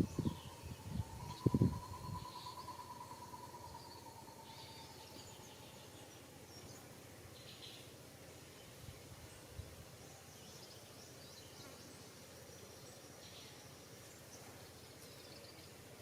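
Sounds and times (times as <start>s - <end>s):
bird chirps: 0.0s - 8.0s
faint insect drone: 0.0s - 16.0s.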